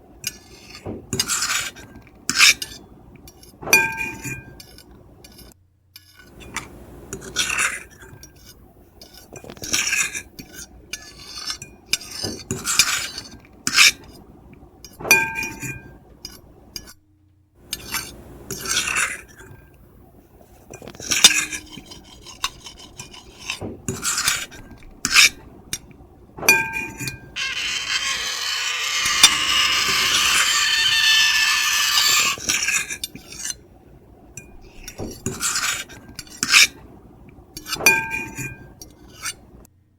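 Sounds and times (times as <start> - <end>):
fork and knife scraping a plate: 0.2 - 6.6, 7.2 - 14.2, 17.7 - 19.6, 20.6 - 25.4, 26.5 - 33.6, 34.4 - 36.8, 37.6 - 39.5.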